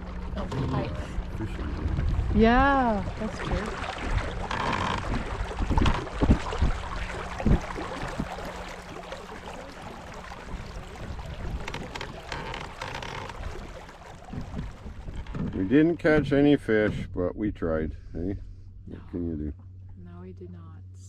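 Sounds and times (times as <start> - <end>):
steady low hum: 0.0 - 21.0
water noise: 0.0 - 21.0
wind on microphone: 0.6 - 8.7, 9.6 - 17.5
knocks on boat: 1.7 - 8.7, 10.4 - 17.1.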